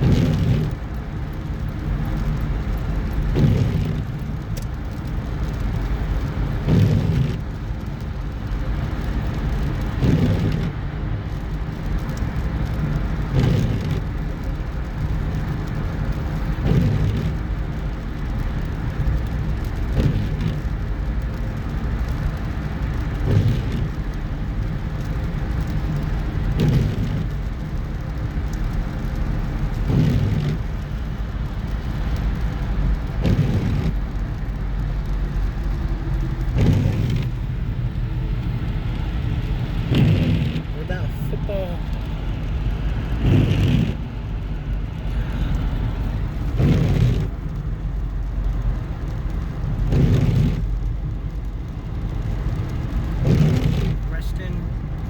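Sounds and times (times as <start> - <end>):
car road and engine rumble: 0.0 - 55.0
short sweep or thump: 39.8 - 41.6.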